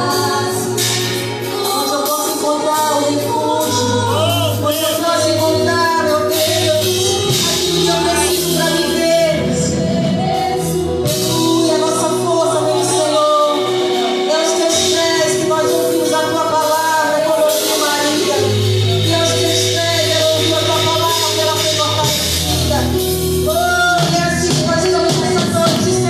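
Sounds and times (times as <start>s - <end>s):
voices singing: 0.0s - 14.9s
band with drums and cymbals: 0.0s - 26.0s.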